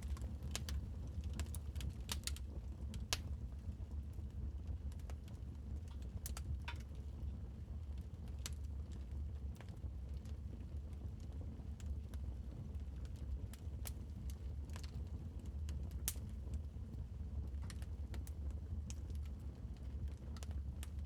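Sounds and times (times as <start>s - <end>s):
fire pops and snaps: 3.0s - 3.4s.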